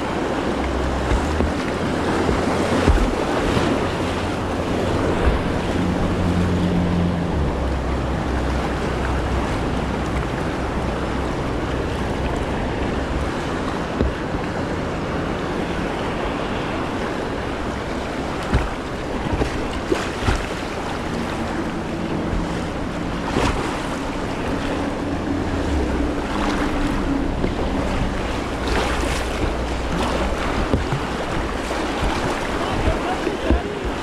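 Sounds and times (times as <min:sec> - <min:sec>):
rushing whitewater: 0:00.0 - 0:34.0
wind on microphone: 0:00.0 - 0:34.0
sharp splashes or knocks: 0:00.4 - 0:07.1, 0:13.1 - 0:14.5, 0:17.6 - 0:34.0.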